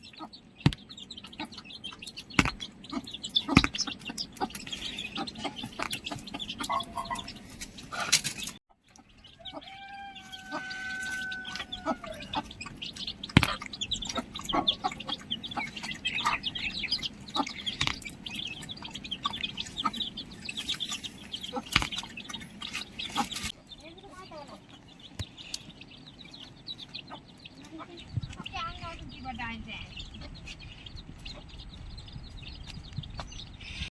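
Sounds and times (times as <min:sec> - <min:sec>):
chickens clucking: 0:00.0 - 0:33.9
small birds chirping: 0:00.0 - 0:33.9
rooster crowing: 0:09.3 - 0:12.4.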